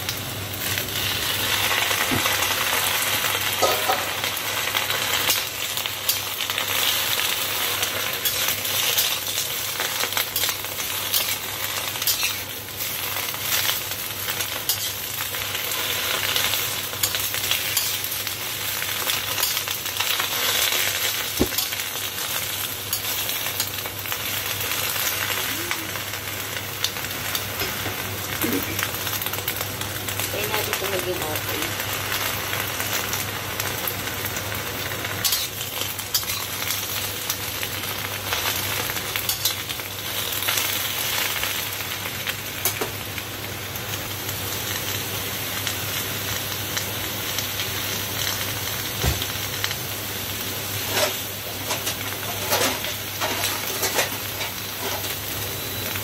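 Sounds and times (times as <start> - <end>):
cabbage sizzling in a wok: 0.0 - 56.0
spatula scraping a wok: 10.4 - 12.4, 50.8 - 55.6.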